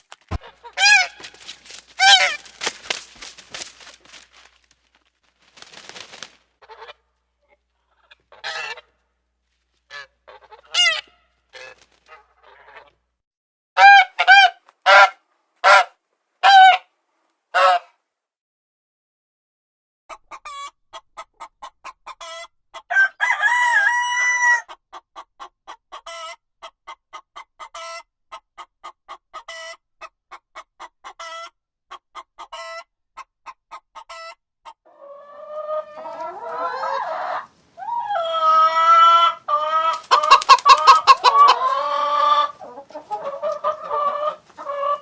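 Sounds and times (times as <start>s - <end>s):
chicken drawn-out calls: 0.3s - 4.7s, 5.5s - 9.2s, 9.8s - 13.1s, 13.8s - 16.9s, 17.5s - 17.9s, 20.1s - 45.0s
chicken clucking: 0.4s - 3.9s, 6.6s - 9.0s, 9.9s - 13.1s, 20.1s - 45.0s.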